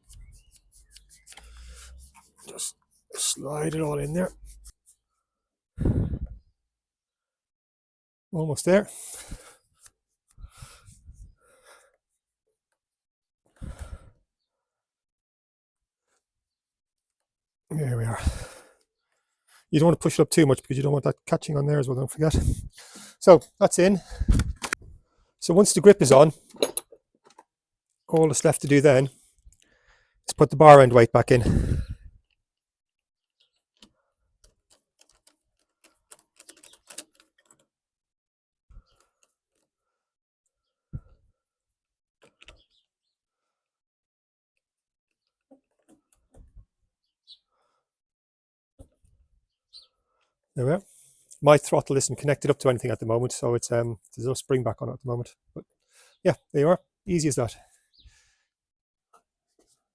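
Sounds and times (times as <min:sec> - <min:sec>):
heavy effortful breathing: 0:31.4 - 0:32.1
faint metal clicks and taps: 0:33.8 - 0:37.7.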